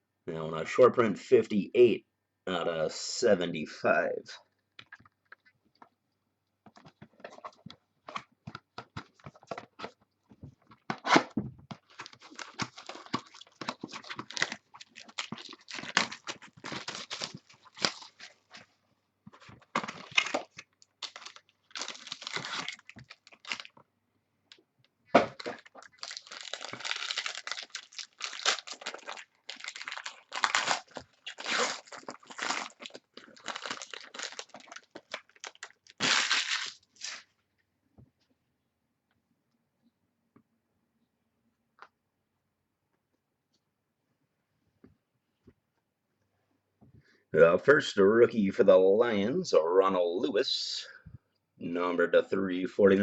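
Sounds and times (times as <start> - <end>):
plastic packaging crinkling and tearing: 11.8 - 18.7, 19.4 - 23.8, 25.3 - 37.3.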